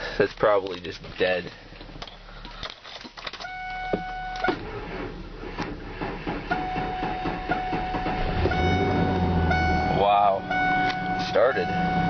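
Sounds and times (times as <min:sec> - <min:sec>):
dashboard warning tone: 0:03.4 - 0:04.6, 0:06.5 - 0:12.0
engine cranking and starting: 0:04.4 - 0:09.4.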